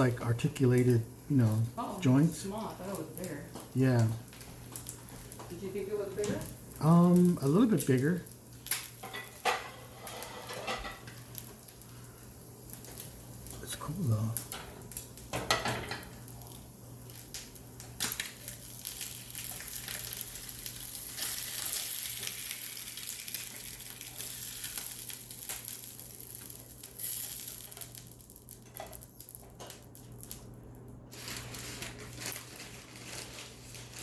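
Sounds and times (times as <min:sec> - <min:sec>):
plastic packaging crinkling: 0:17.2 - 0:34.0.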